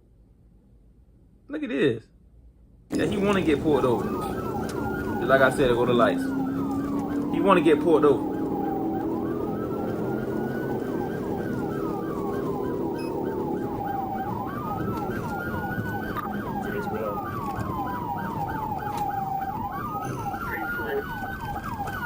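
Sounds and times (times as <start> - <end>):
police siren wail and yelp: 2.9 - 22.0
vehicle rumble: 2.9 - 22.0.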